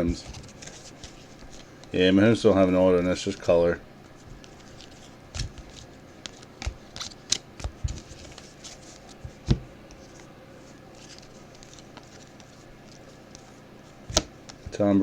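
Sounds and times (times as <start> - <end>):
cards being handled: 0.0 - 2.0, 3.0 - 14.8
trading cards clicking and snapping: 4.4 - 9.6.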